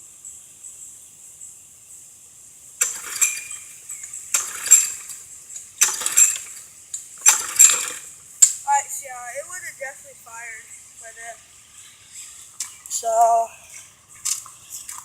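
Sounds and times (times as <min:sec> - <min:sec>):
crickets chirping: 0:00.0 - 0:15.0
mower recoil starter pulled: 0:02.8 - 0:08.6.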